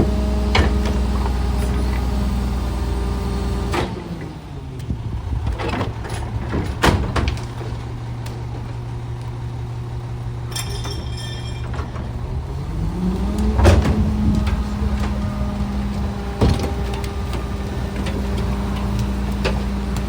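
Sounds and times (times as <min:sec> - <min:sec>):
truck engine idling: 0:04.3 - 0:20.0
sharp metal clank: 0:10.5 - 0:12.2.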